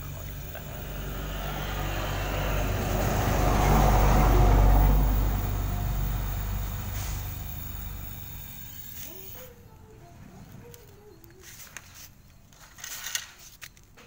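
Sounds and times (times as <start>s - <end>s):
pressurised gas rushing hiss: 2.9s - 9.2s.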